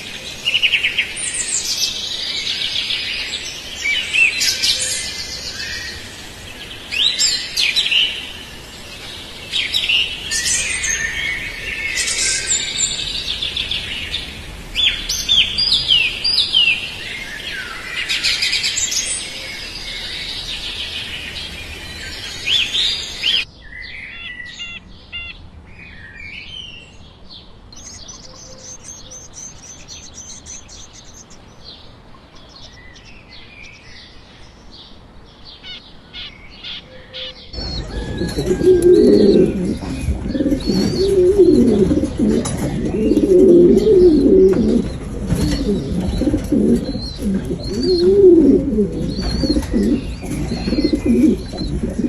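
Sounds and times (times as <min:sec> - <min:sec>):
background noise: 0:00.0 - 0:52.0
small birds chirping: 0:00.0 - 0:52.0.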